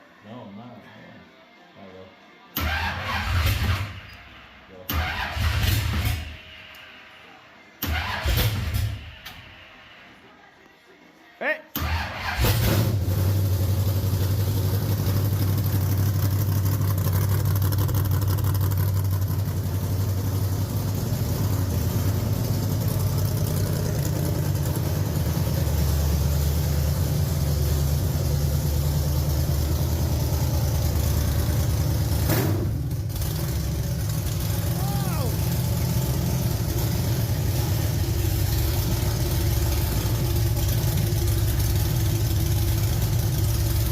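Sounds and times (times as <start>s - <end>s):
race car engine running: 12.4s - 43.9s.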